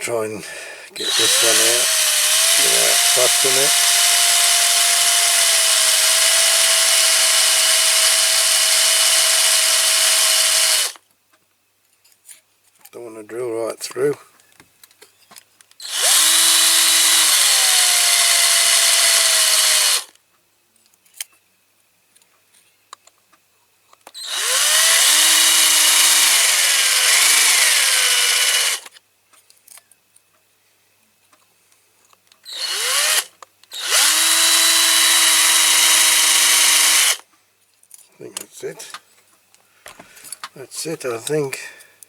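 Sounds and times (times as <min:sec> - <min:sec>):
electric drill whining: 0:01.0 - 0:11.0, 0:15.8 - 0:20.1, 0:24.2 - 0:28.9, 0:32.5 - 0:37.2.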